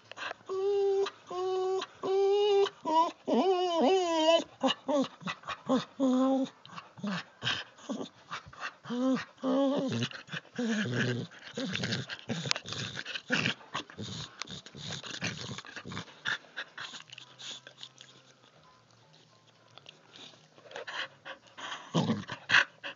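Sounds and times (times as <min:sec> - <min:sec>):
dog vocalizing: 0:00.5 - 0:18.3.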